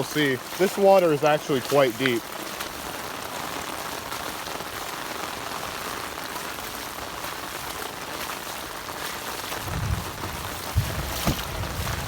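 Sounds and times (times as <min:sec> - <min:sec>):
heavy rain falling: 0:00.0 - 0:12.0
low rumble: 0:09.6 - 0:12.0.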